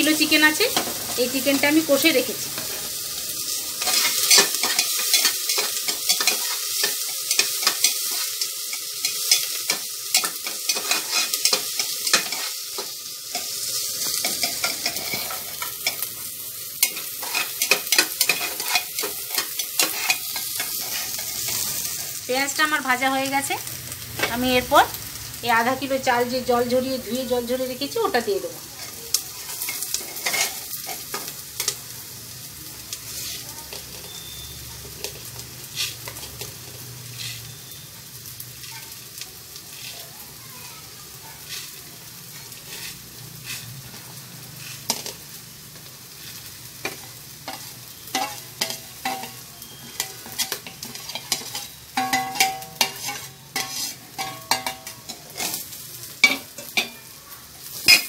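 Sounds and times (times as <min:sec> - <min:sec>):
oil sizzling in a pot: 0:00.0 - 0:58.0
metal spoon scraping and clinking: 0:03.4 - 0:16.1, 0:16.8 - 0:22.0, 0:29.5 - 0:31.8, 0:46.3 - 0:57.1.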